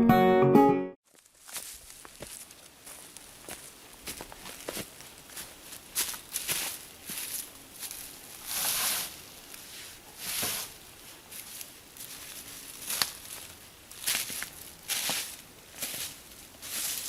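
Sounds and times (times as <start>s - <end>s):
footsteps through dry leaves: 1.0s - 17.0s
twigs snapping clicks: 12.9s - 13.2s.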